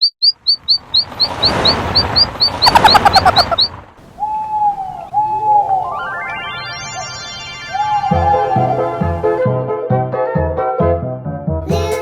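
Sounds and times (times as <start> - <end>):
cartoon bird rising chirps: 0.0 - 9.4
long falling coo-like tones: 4.0 - 9.4.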